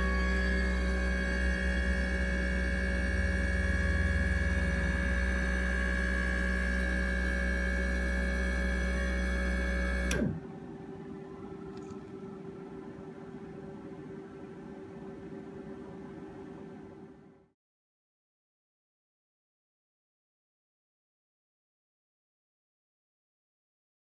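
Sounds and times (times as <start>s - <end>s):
machine humming and winding down: 0.0s - 17.2s.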